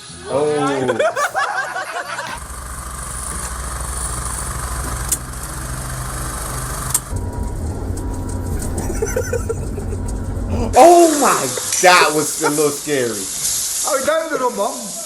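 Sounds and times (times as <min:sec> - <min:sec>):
engine running with low rumble: 0:02.3 - 0:11.1.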